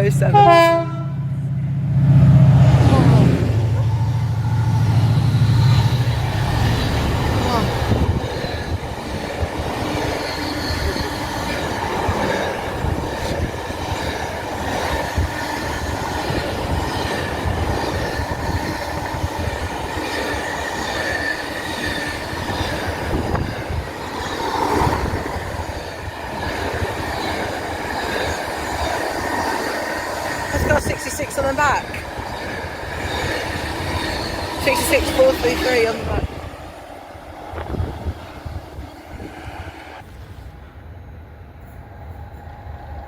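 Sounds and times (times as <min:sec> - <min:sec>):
train wheels rumbling on rails: 0:00.0 - 0:43.0
high squeal of train wheels: 0:03.8 - 0:36.2.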